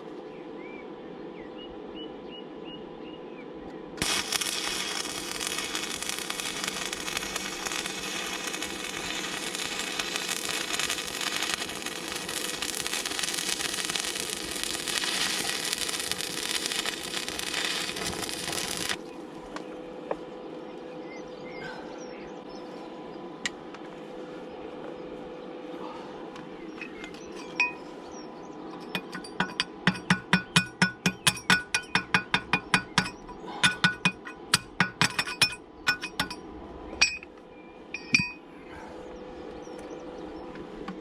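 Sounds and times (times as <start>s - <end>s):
steady hum: 0.0s - 41.0s
arc welding crackling: 4.0s - 19.2s, 28.8s - 36.4s.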